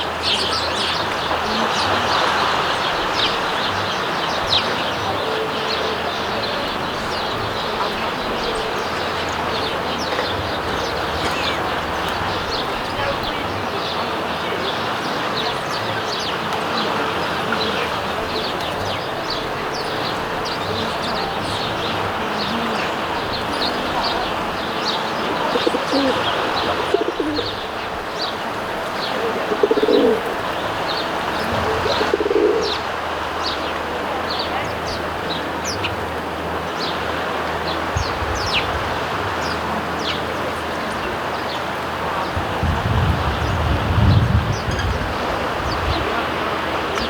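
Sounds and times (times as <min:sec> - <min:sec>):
constant rushing noise: 0:00.0 - 0:47.0
sparrows chirping: 0:00.0 - 0:47.0.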